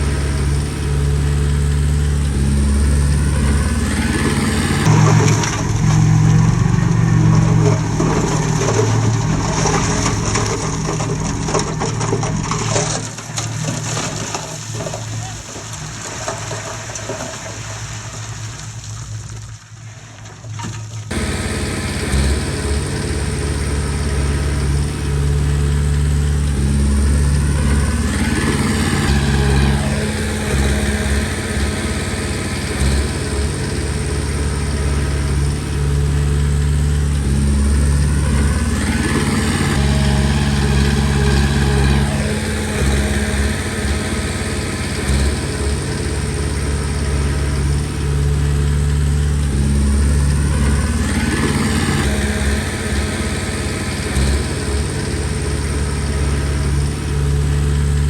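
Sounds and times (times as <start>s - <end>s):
bulldozer diesel engine whining: 0.0s - 58.0s.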